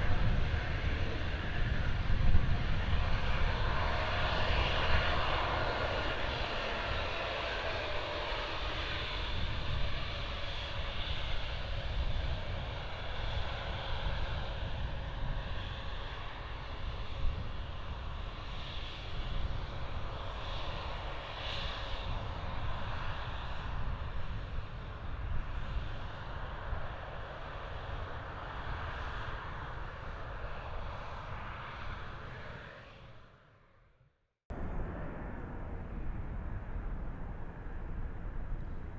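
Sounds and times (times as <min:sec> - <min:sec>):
jet engines rumbling: 0:00.0 - 0:22.9, 0:34.5 - 0:38.9
faint falling whine: 0:34.5 - 0:38.9.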